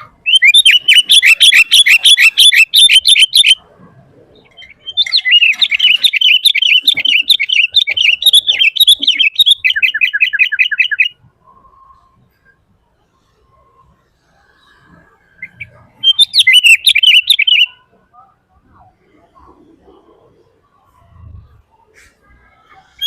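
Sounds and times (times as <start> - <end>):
bulbul singing in chattering phrases: 0.0 - 3.6, 4.3 - 11.2, 15.4 - 19.4.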